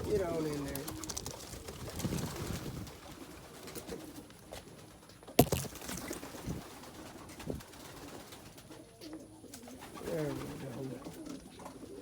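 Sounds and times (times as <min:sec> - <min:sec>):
pigeons cooing: 0:06.6 - 0:12.0.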